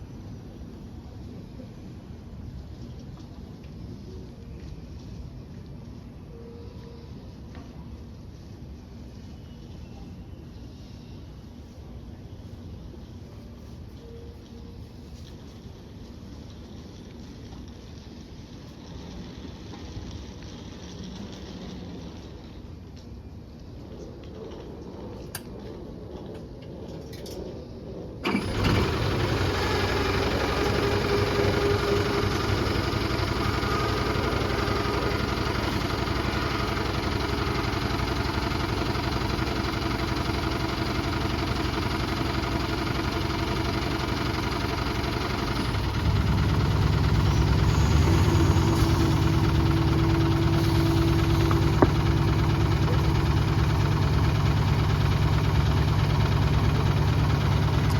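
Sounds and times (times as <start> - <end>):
bus diesel engine starting and idling: 28.2 - 57.9.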